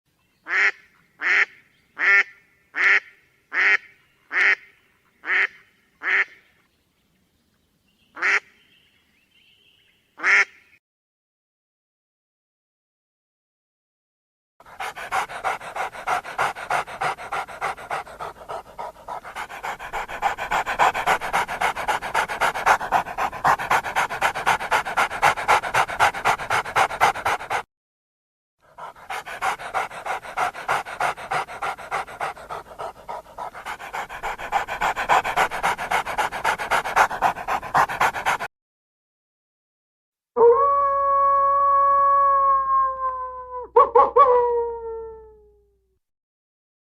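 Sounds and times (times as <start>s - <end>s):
dog panting: 14.6s - 27.7s, 28.7s - 38.5s.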